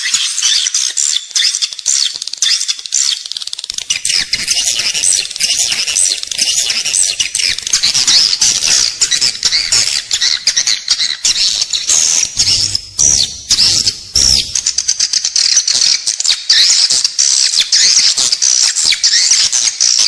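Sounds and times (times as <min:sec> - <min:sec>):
swiftlets chirping and trilling: 0:00.0 - 0:18.1.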